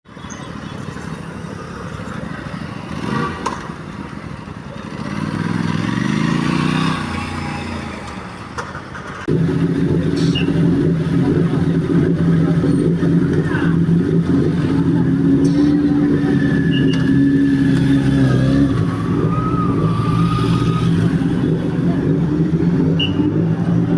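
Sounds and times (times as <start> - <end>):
street noise: 0.0 - 23.9
engine rising in pitch: 9.3 - 23.9.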